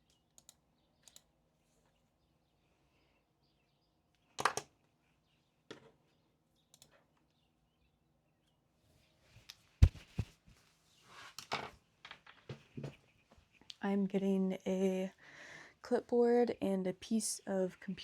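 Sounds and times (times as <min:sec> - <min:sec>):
knocks and clicks on desk: 0:09.8 - 0:10.3
thud: 0:09.8 - 0:10.3
rustling: 0:09.8 - 0:10.5.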